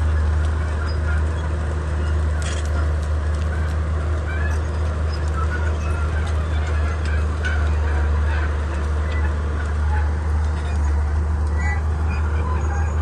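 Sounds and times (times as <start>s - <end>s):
bulldozer diesel engine running: 0.0s - 13.0s
short high-pitched squeaks: 0.7s - 13.0s.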